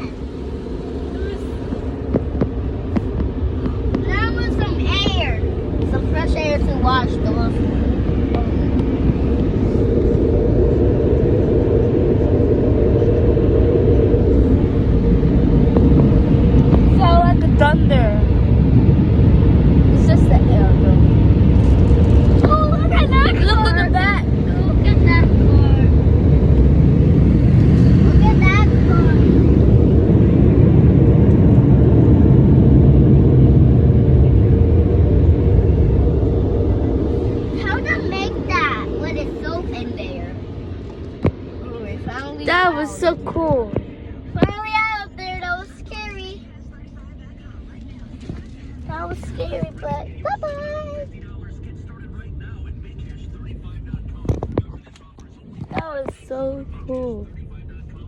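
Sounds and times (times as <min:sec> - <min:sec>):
car wash air blowers rushing: 0:00.0 - 0:46.3.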